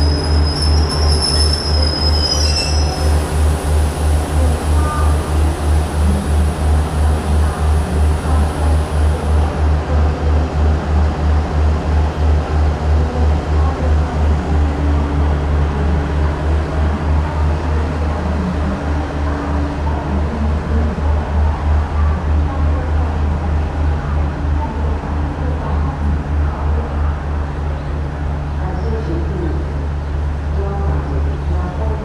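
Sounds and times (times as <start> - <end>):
diesel train engine idling: 0.0 - 32.0.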